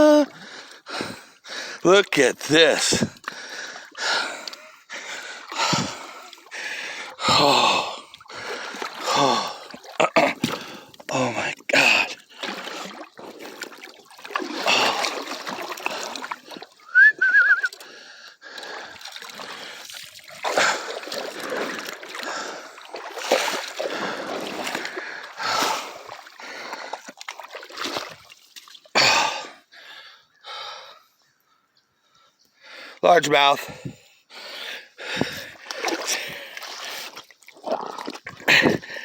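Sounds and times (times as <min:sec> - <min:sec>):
water splashing from thrashing fish: 0:02.9 - 0:16.9, 0:18.6 - 0:29.2, 0:35.3 - 0:39.0.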